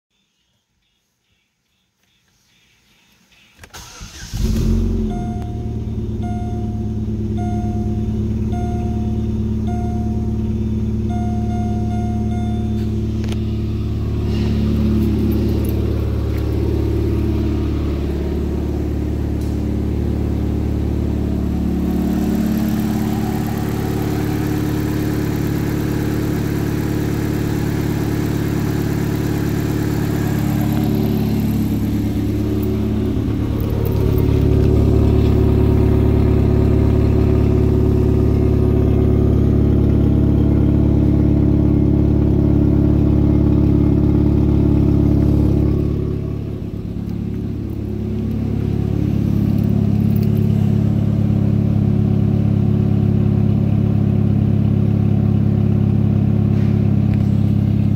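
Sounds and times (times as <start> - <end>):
car engine idling: 3.8 - 57.9.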